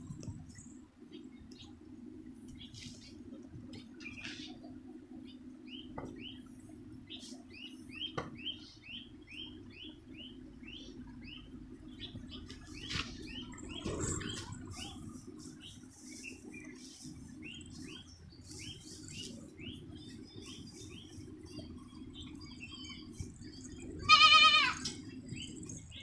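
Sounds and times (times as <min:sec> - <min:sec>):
small bird chirping: 0:07.1 - 0:26.0.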